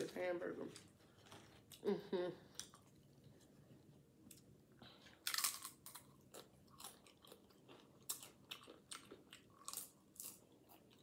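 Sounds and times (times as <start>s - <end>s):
tortilla chip crunching: 5.2s - 11.0s.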